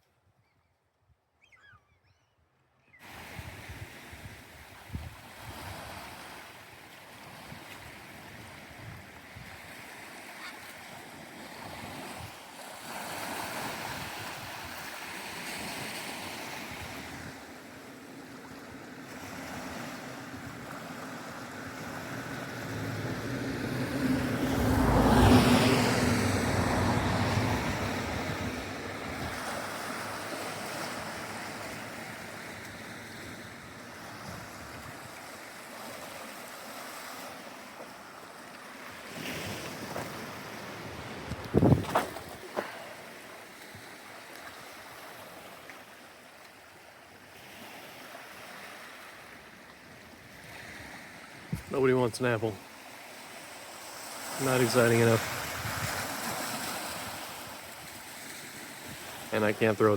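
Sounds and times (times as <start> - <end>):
wind: 0.0 - 59.9
water noise: 3.0 - 59.9
engine passing by: 21.6 - 29.7.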